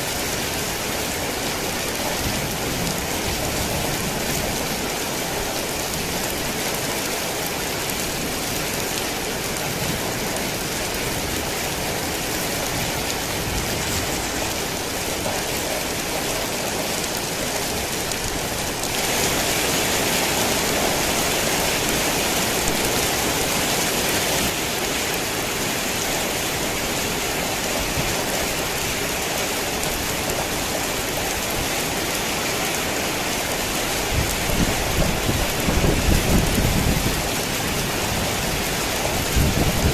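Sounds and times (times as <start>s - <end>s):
heavy rain: 0.0s - 39.9s
thunder rumble: 34.1s - 39.9s.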